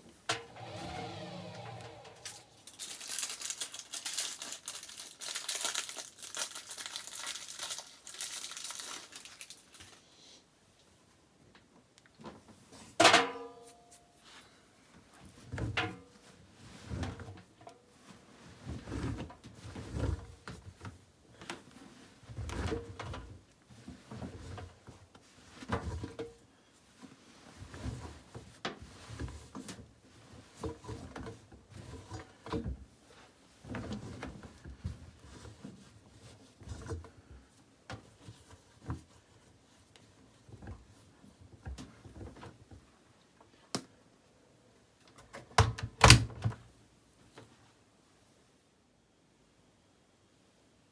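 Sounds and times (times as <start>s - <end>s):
laundry tumbling in washing machine: 0.3s - 4.0s, 18.4s - 21.0s, 33.6s - 37.2s.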